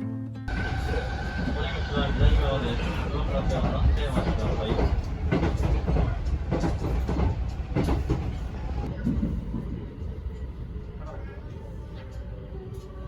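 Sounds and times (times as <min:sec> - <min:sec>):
faint voices: 0:00.5 - 0:13.0
train rumble inside carriage: 0:00.5 - 0:13.0.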